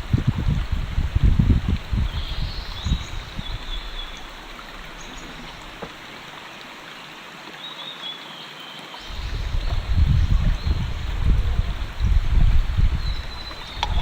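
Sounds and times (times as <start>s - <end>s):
creek babbling: 0.0s - 14.0s
low rumble: 9.1s - 14.0s.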